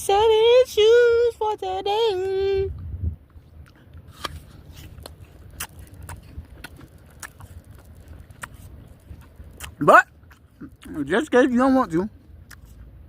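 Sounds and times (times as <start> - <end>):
low steady rumble: 0.0 - 13.0
crunchy chewing: 3.2 - 13.0.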